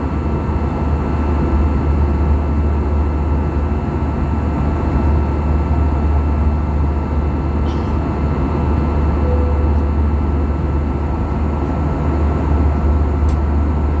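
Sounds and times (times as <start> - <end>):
airplane cabin engine drone: 0.0 - 14.0
deep low hum: 7.3 - 14.0.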